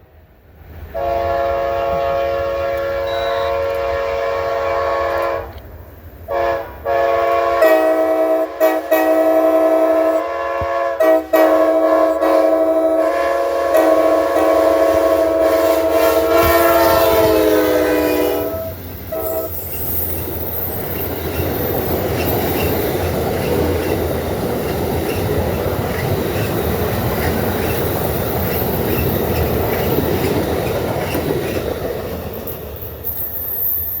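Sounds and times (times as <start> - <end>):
train rumble and wheel clatter: 0.0 - 34.0
locomotive air horn: 0.9 - 5.6, 6.3 - 19.6.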